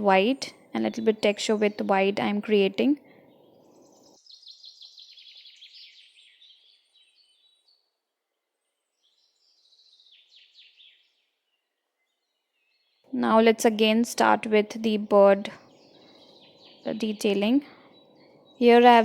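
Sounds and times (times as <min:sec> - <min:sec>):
small birds twittering: 0:00.0 - 0:19.0.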